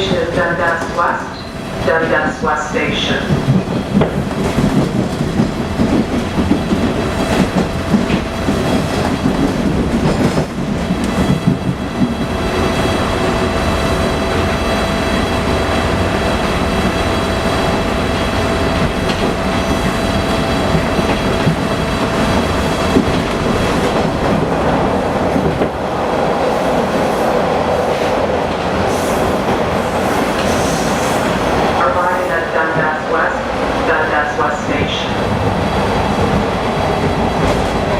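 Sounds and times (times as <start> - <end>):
steel wheels rumbling on rails: 0.0 - 37.9
clickety-clack knocks: 3.0 - 12.7, 18.7 - 24.6, 25.3 - 25.8, 36.2 - 37.9.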